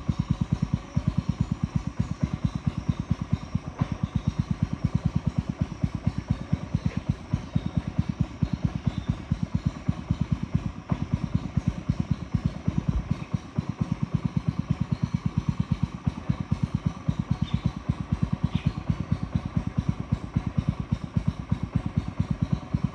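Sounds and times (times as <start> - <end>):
small boat motor chugging: 0.0 - 22.9.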